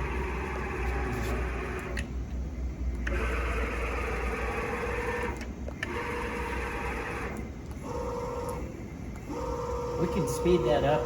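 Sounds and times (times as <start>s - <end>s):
low machine hum: 0.0s - 11.0s
milling machine motors whining: 0.0s - 11.0s.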